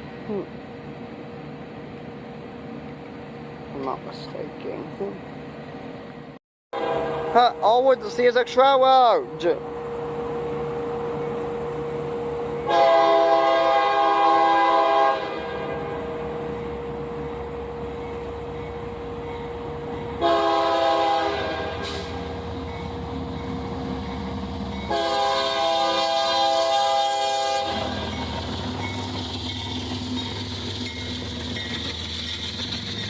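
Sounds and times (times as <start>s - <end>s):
low rumble of passing train: 0.0s - 33.0s
locomotive air horn: 6.7s - 7.5s, 12.7s - 16.3s, 20.2s - 22.3s, 24.9s - 28.2s.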